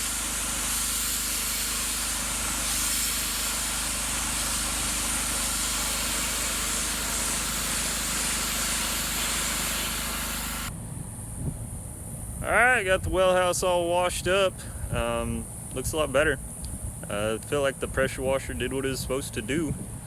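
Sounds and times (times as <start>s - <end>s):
high-pressure water spray hiss: 0.0s - 10.7s
pressure washer engine running: 0.0s - 10.7s.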